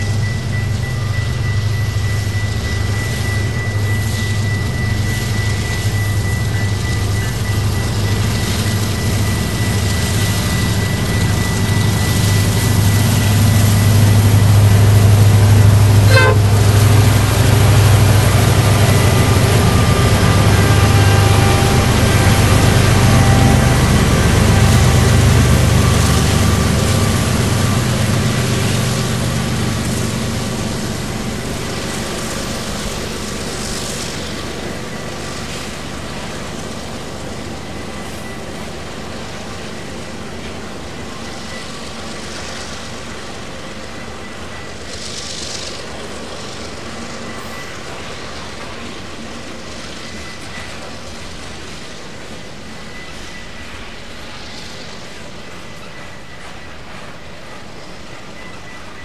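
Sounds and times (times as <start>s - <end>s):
diesel locomotive engine rumble: 0.0s - 59.0s
thin steady whistling tones: 0.0s - 59.0s.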